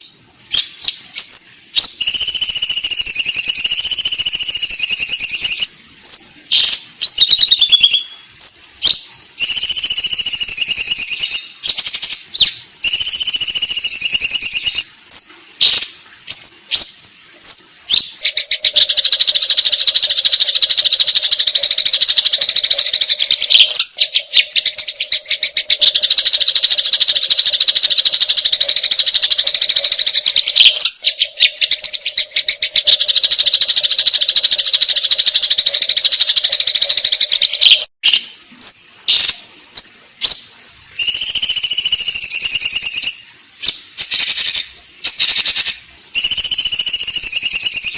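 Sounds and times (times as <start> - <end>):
sparrows chirping and chattering: 0.0 - 37.9.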